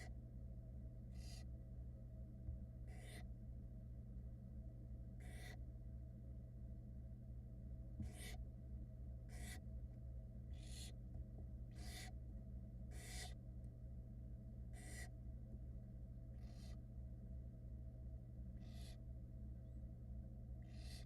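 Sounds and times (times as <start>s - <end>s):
low electrical hum: 0.0s - 21.0s
owl chicks hissing begging calls: 1.1s - 1.5s, 2.8s - 3.3s, 5.2s - 5.6s, 8.0s - 8.4s, 9.3s - 9.6s, 10.5s - 11.0s, 11.7s - 12.2s, 12.9s - 13.4s, 14.7s - 15.2s, 16.3s - 16.8s, 18.6s - 19.1s, 20.6s - 21.0s.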